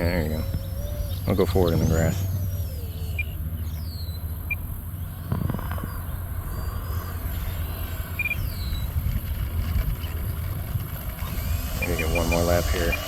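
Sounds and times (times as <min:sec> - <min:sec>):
model jet fan whining: 0:00.0 - 0:05.0, 0:06.1 - 0:13.0
wind rumble on microphone: 0:03.5 - 0:13.0.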